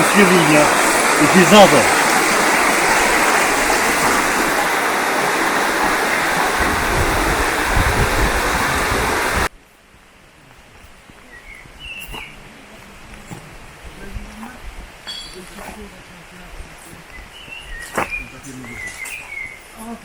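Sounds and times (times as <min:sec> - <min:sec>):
rushing water: 0:00.0 - 0:09.5, 0:10.4 - 0:20.0
faint bird chirps: 0:11.2 - 0:12.5, 0:17.0 - 0:19.8.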